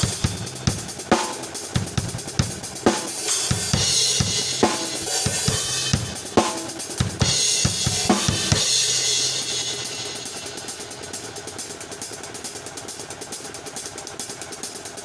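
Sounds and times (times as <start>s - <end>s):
snare drum backbeat: 0.0s - 10.8s
cymbals ringing: 0.0s - 11.4s
hi-hat: 0.0s - 15.0s.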